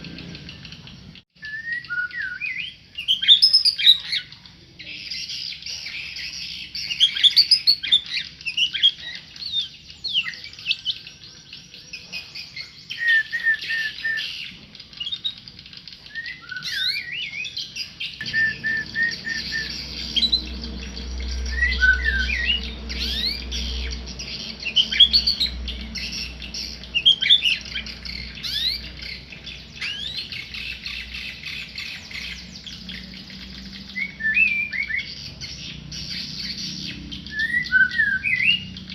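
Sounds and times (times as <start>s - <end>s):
songbird singing: 0.0s - 38.9s
low steady hum: 18.2s - 33.7s.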